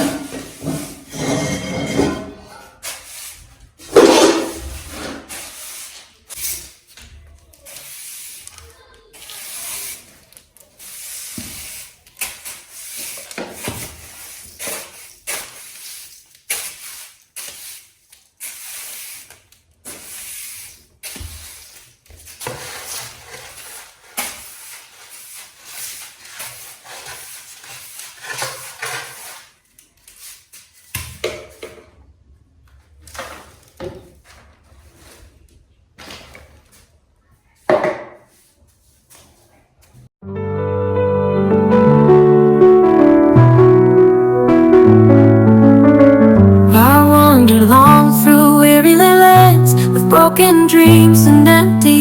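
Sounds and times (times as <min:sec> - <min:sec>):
short scraping noises: 0:02.9 - 0:06.6.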